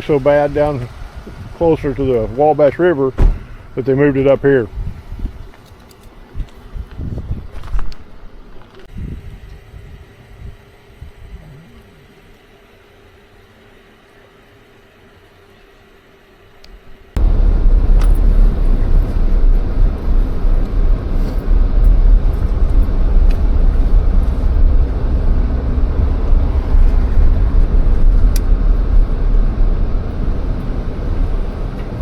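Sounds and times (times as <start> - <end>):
car engine and road rumble: 16.6 - 32.0.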